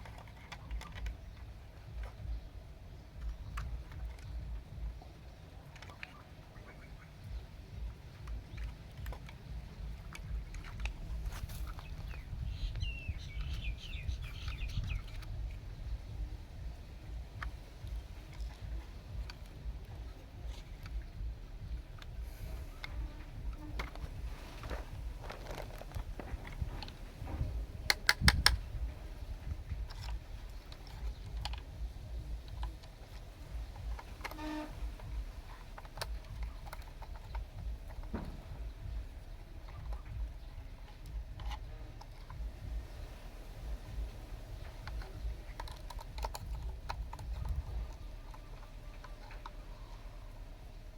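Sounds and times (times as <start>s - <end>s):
low rumble: 7.0s - 34.0s
birds chirping short calls: 11.3s - 15.4s
scattered clicks: 17.1s - 39.0s, 43.6s - 50.1s.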